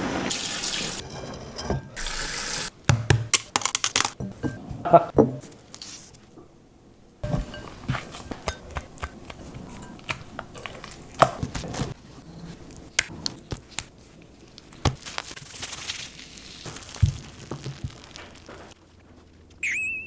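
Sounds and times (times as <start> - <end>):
utensils or dishes clattering: 0.1 - 2.7.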